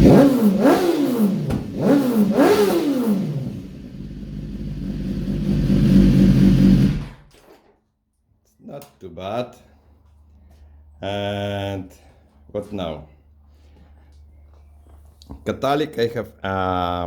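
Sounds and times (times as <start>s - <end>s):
motorcycle engine revving and idling: 0.0s - 7.3s.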